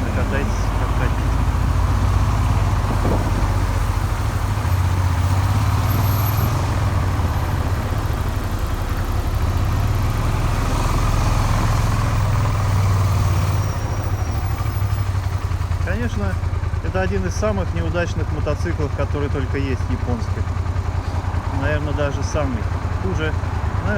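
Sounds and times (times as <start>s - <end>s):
motorcycle engine running: 0.0s - 23.9s
wind on microphone: 2.7s - 4.1s.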